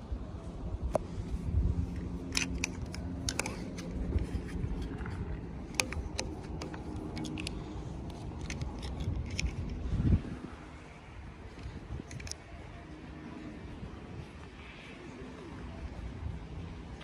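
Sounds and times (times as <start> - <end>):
rubbing and handling noise: 1.8 - 10.0.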